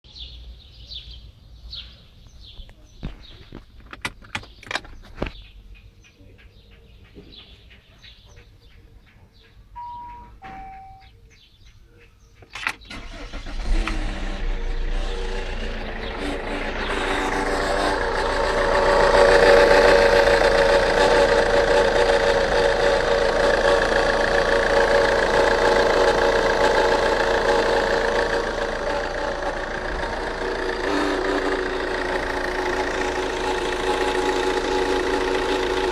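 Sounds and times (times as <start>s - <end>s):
car engine running: 2.4s - 5.5s, 12.4s - 35.9s
clicks: 2.6s - 5.4s
short descending beeps: 9.8s - 11.1s.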